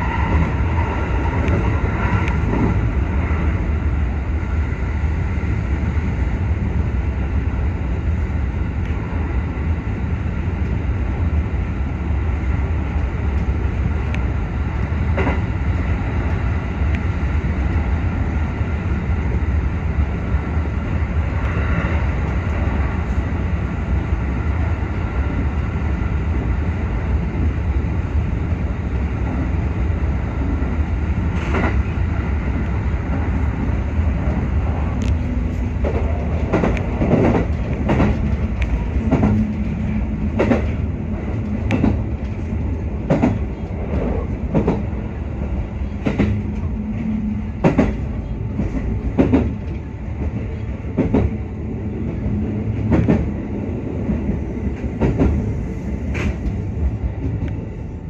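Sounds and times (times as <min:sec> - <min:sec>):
train running at speed: 0:00.0 - 0:58.0.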